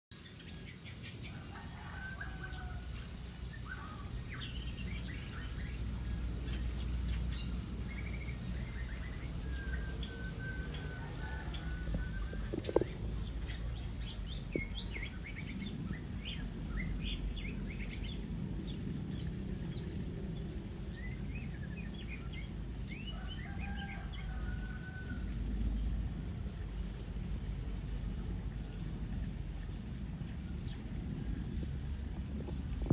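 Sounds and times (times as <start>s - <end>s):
low background rumble: 0.2s - 32.9s.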